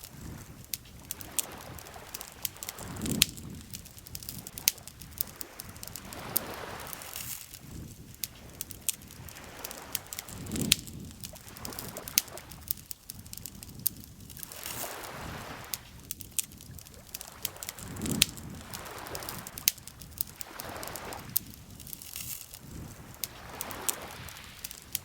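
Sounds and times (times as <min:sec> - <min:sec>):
lake water lapping: 0:00.0 - 0:13.6, 0:14.4 - 0:25.0
campfire crackling: 0:00.0 - 0:25.0.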